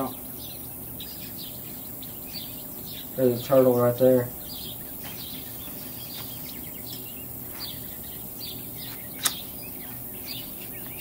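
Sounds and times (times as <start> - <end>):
birds chirping: 0.0 - 11.0
faint low hum: 0.0 - 11.0
sharp click: 9.2 - 9.5.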